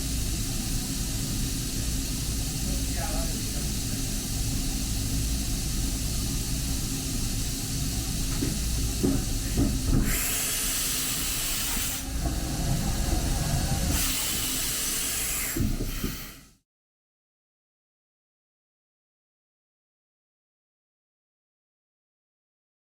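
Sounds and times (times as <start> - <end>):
milling machine hum and hiss: 0.0 - 16.5.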